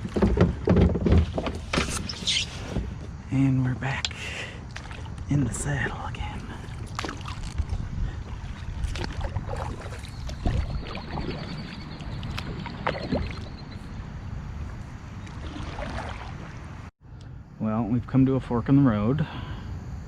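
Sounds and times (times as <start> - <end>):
paddle knocking against hull: 0.0 - 1.9
paddle strokes splashing: 4.6 - 5.3, 6.2 - 14.0, 14.6 - 16.9.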